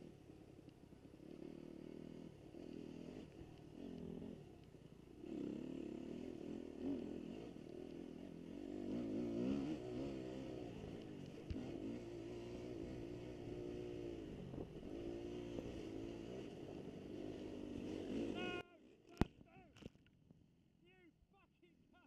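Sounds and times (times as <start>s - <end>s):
dirt bike engines revving: 0.0s - 19.6s.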